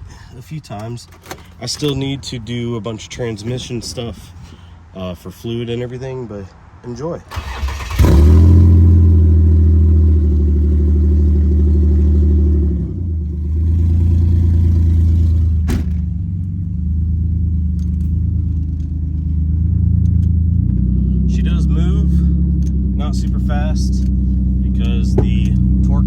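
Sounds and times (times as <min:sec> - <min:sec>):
car engine idling: 0:07.3 - 0:26.0.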